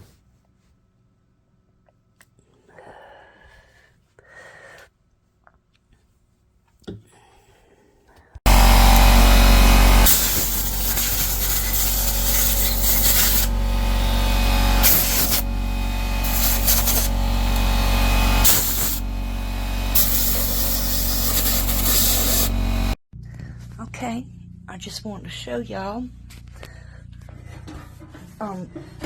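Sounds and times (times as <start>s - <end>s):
air compressor humming: 8.5s - 23.0s
compressed air blasting: 8.5s - 23.0s.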